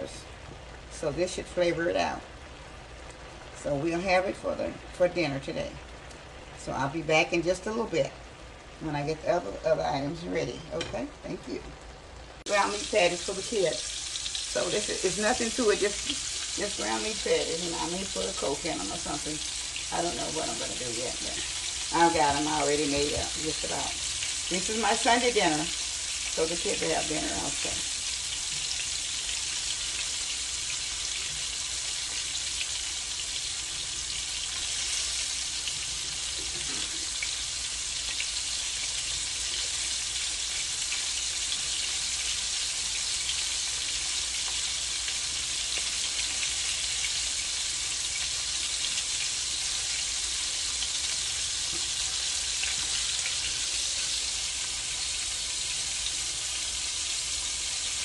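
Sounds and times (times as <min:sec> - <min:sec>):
meat sizzling in a pan: 0:12.4 - 0:58.0.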